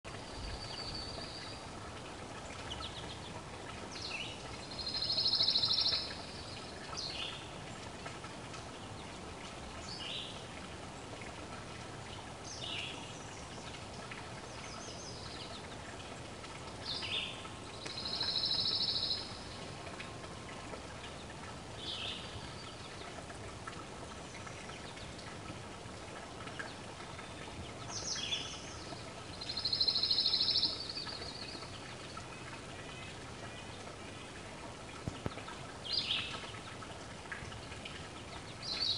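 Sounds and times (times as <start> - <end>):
birds singing buzzy trills: 16.9 - 19.6.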